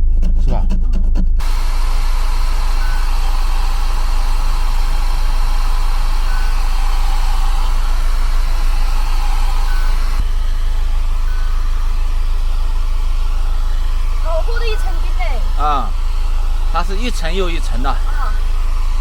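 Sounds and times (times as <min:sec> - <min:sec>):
hair dryer running: 0:01.4 - 0:19.0
faint short high beep: 0:06.2 - 0:08.0, 0:09.5 - 0:10.1, 0:14.4 - 0:15.3, 0:17.9 - 0:18.6.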